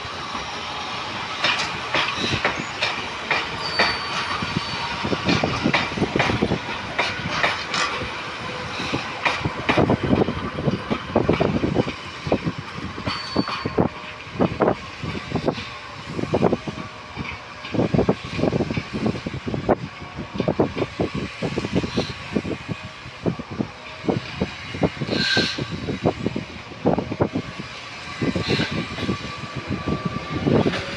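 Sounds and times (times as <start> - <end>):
train wheels clattering over rail joints: 0.0 - 30.9
high squeal: 3.5 - 5.2.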